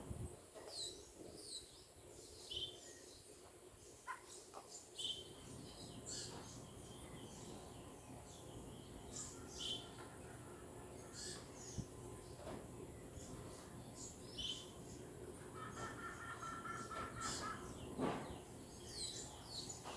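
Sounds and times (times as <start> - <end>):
faint steady background hum: 0.0 - 19.9
wild birds chirping: 0.0 - 19.9.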